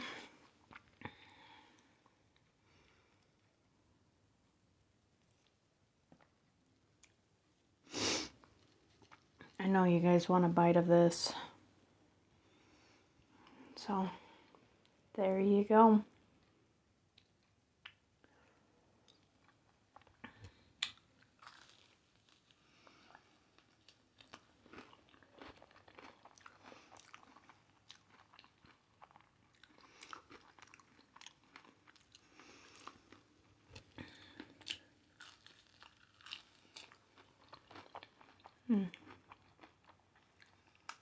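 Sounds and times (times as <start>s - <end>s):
crunching and chewing: 0.3s - 2.5s, 8.4s - 9.6s, 19.0s - 41.0s.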